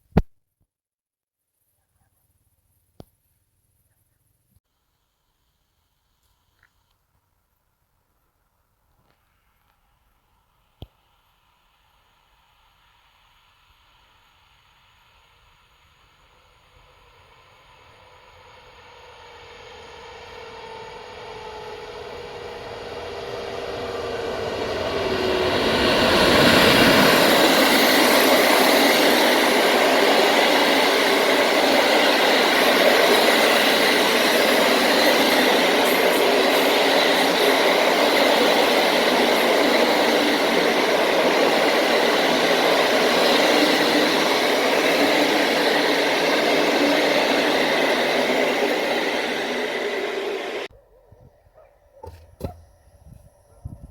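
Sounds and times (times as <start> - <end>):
train passing on rails: 11.4 - 50.7.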